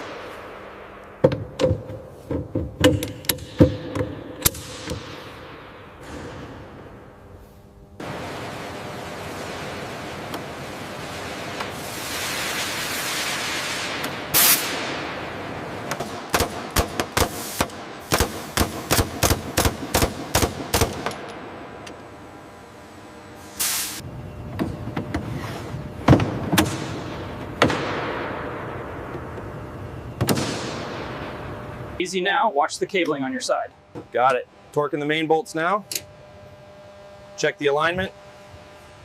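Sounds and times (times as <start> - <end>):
hiss: 11.0 - 14.9, 23.4 - 24.0.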